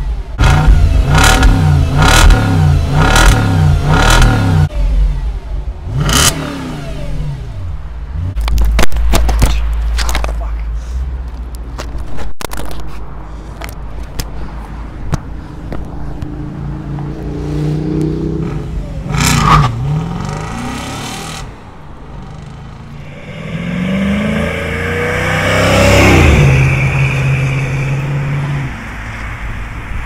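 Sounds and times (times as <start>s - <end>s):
car engine accelerating: 0.3s - 8.6s, 16.2s - 29.7s
vehicle passing quickly: 15.4s - 30.0s.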